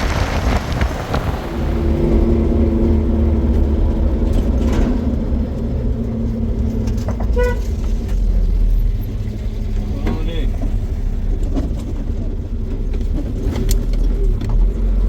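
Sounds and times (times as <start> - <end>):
vehicle engine rumbling: 0.0 - 15.0
short horn toot: 7.3 - 7.8.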